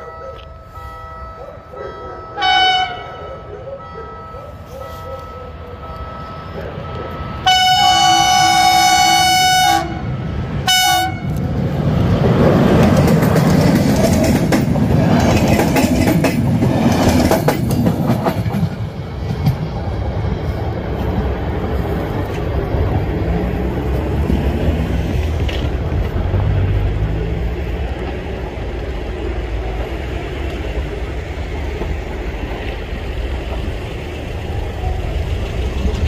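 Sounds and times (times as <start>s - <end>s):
train horn blasts: 0.0s - 11.4s
train rumble and wheel clatter: 0.0s - 36.0s.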